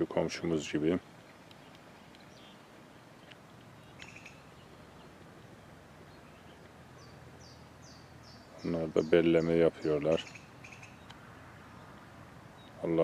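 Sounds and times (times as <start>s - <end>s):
short bird chirps: 3.8s - 4.7s.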